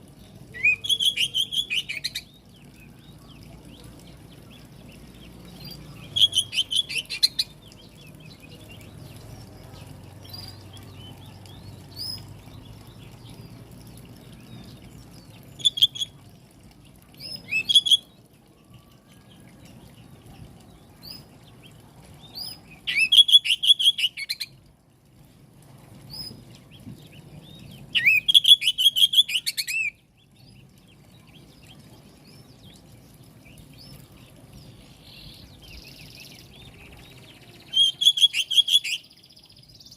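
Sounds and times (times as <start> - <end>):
bird chattering song: 0.5 - 3.8, 5.0 - 8.8, 22.9 - 24.6, 28.0 - 30.0, 35.1 - 39.9.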